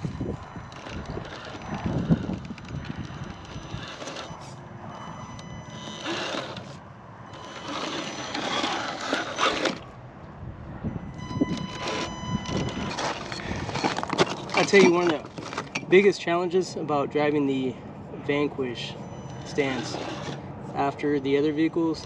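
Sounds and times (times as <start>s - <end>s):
electric motor and gears whirring: 0.0s - 16.2s, 18.1s - 22.0s
tyres scraping on rock: 0.7s - 4.6s, 7.4s - 9.9s, 11.6s - 16.1s, 19.5s - 20.9s.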